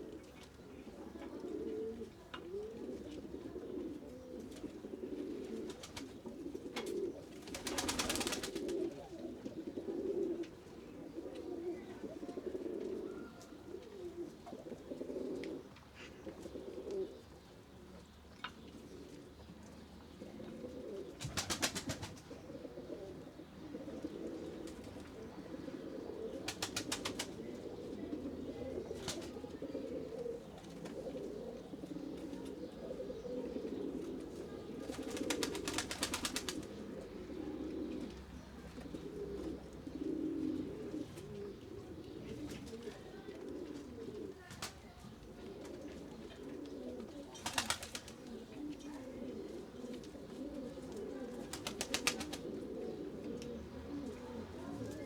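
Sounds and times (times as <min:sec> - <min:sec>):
pigeons cooing: 0:00.0 - 0:55.0.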